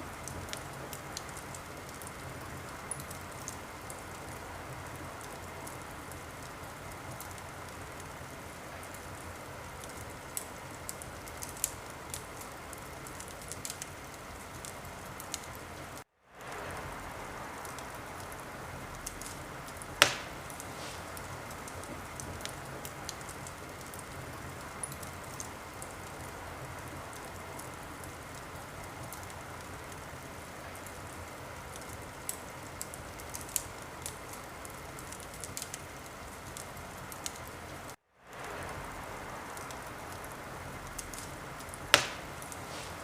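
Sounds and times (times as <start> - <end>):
wood fire crackling: 0.0 - 43.0
loud pop from fire: 20.0 - 21.8, 41.9 - 43.0.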